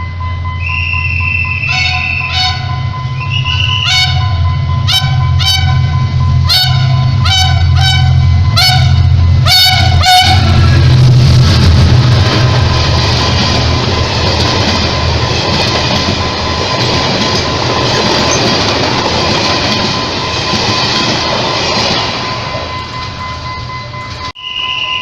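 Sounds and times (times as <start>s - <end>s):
locomotive low drone: 0.0s - 25.0s
train running on rails: 0.0s - 25.0s
train horn toots: 0.6s - 11.0s.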